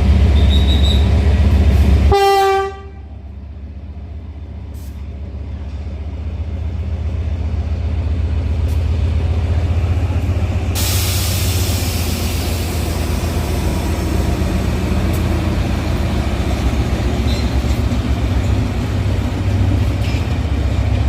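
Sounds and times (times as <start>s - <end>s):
locomotive diesel engine rumble: 0.0s - 21.0s
broad hiss: 10.8s - 14.0s.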